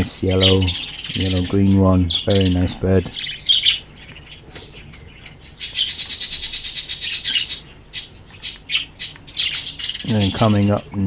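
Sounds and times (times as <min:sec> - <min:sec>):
budgerigars chirping: 0:00.0 - 0:11.0
fast rasping chatter: 0:00.0 - 0:11.0.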